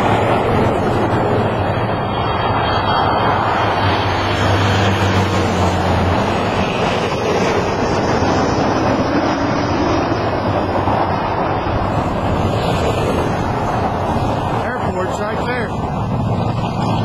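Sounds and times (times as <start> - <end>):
low engine drone: 0.0 - 17.0
road traffic passing: 0.0 - 17.0
wind buffeting microphone: 0.0 - 17.0.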